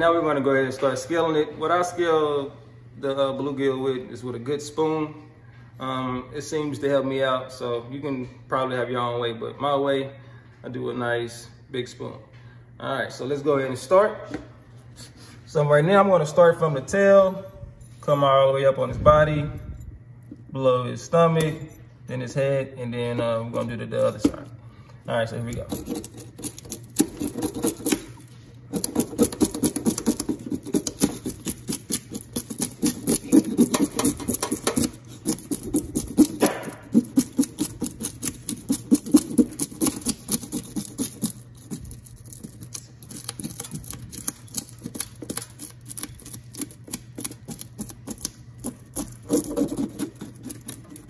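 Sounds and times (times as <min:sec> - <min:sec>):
steady low hum: 0:00.0 - 0:51.0
metal spoon scraping fish scales: 0:25.4 - 0:51.0.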